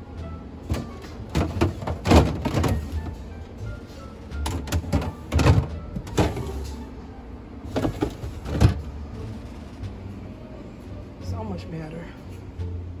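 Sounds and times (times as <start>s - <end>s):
containers knocking on fridge shelves: 0.7s - 3.2s, 4.4s - 6.6s, 7.7s - 8.9s.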